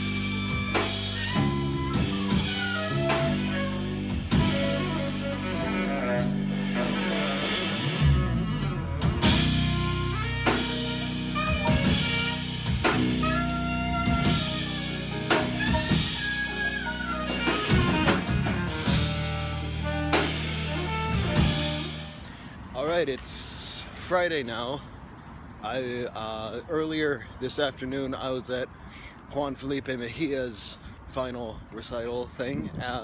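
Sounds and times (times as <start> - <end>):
drum kit: 0.0 - 22.2
guitar: 0.0 - 22.2
held melody notes: 0.0 - 22.2
bass: 0.0 - 22.6.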